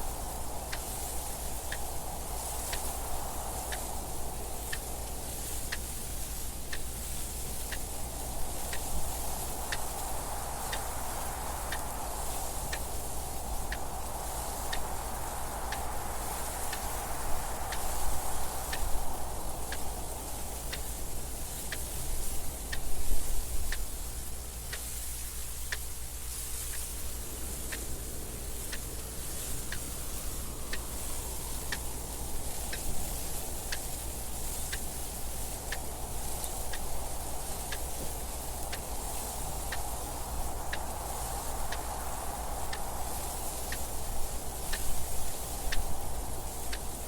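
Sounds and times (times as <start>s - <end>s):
wind gusting: 27.0s - 47.0s
clock ticking: 30.7s - 40.1s.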